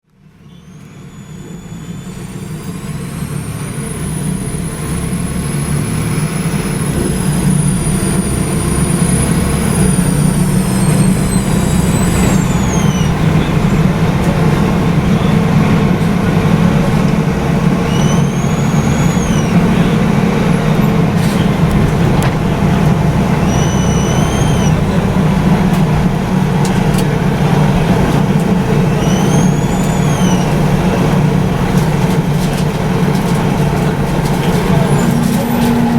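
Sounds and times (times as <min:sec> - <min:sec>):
bus diesel engine running: 0:00.0 - 0:35.9
short rising and falling whines: 0:00.8 - 0:33.2
high whistle gliding down: 0:07.3 - 0:13.7, 0:17.1 - 0:20.6, 0:23.1 - 0:25.5, 0:28.8 - 0:31.0.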